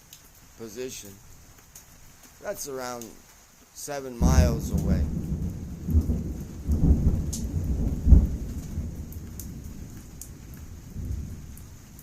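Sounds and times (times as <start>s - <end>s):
heavy rain: 0.0s - 12.0s
distant thunder rumbling: 4.2s - 12.0s.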